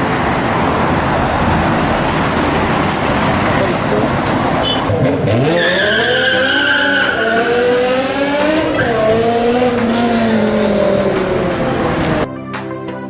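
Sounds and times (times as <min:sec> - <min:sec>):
car engine at high revs: 0:00.0 - 0:12.2.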